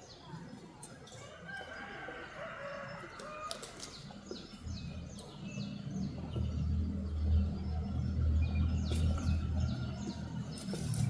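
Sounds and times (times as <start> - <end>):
small birds chirping: 0.0 - 11.0
low rumble: 4.7 - 10.6.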